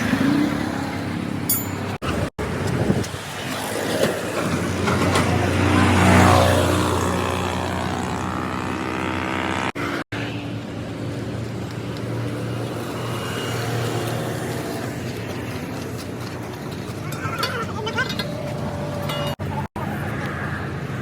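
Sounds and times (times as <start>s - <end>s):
road traffic noise: 0.0s - 21.0s
vehicle passing by: 2.9s - 17.4s.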